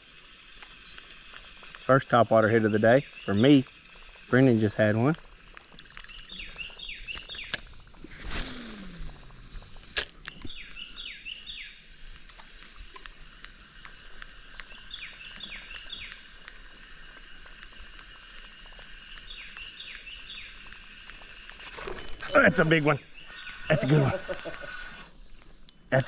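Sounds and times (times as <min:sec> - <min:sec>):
songbird whistling: 0:06.1 - 0:07.5, 0:10.4 - 0:11.7.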